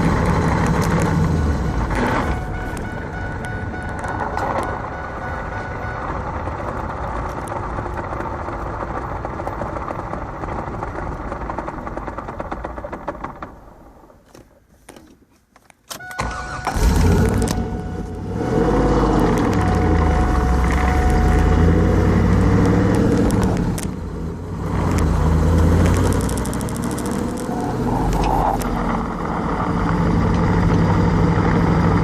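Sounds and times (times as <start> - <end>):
car engine running: 0.0 - 13.5, 16.7 - 32.0
engine cranking and restarting: 16.0 - 32.0.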